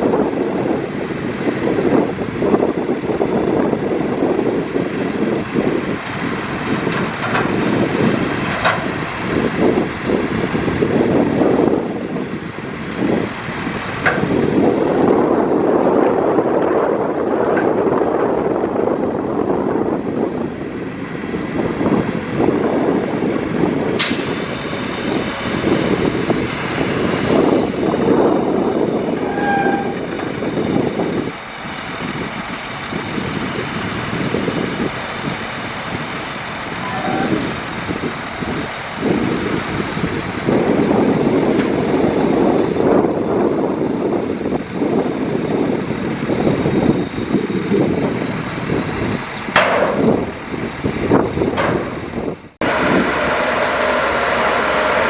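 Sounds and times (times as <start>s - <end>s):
heavy diesel machinery working: 0.0s - 55.0s
metal rattling and clanking: 6.1s - 9.1s, 51.4s - 52.4s.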